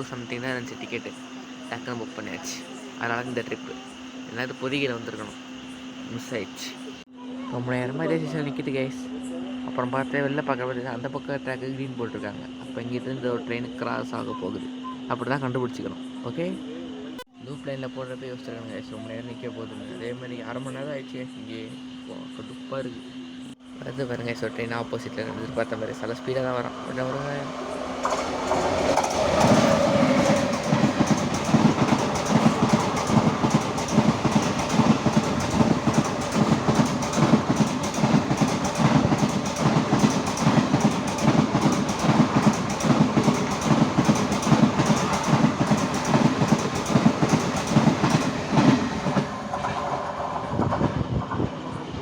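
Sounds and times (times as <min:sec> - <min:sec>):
train wheels clickety-clack: 0:24.1 - 0:51.5.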